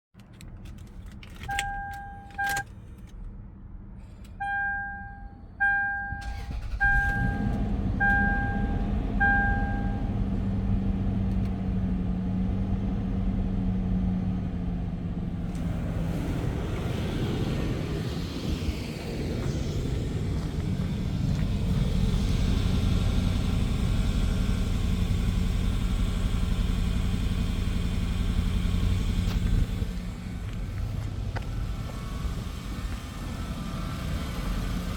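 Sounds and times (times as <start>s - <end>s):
car engine starting and idling: 0.2s - 34.9s
dashboard warning chime beeps: 1.5s - 2.6s, 4.4s - 10.1s.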